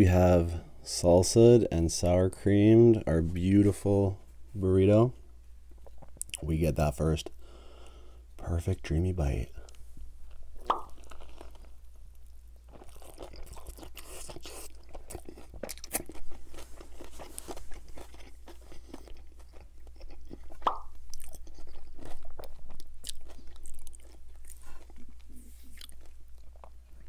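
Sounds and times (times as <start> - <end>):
chewing crunches: 9.7 - 27.0.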